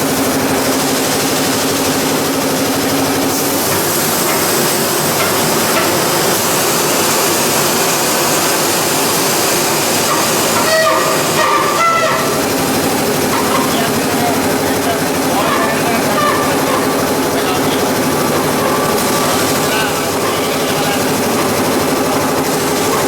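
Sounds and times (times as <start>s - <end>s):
machinery running noise: 0.0s - 23.0s.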